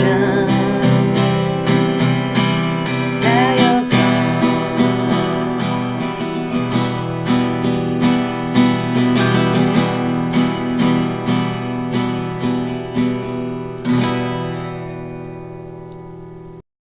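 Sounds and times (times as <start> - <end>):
acoustic guitar strumming: 0.0 - 16.6.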